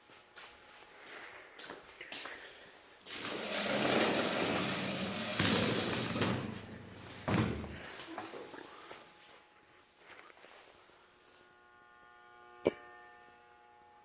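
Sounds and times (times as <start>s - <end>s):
electric fan whirring: 2.9s - 9.7s.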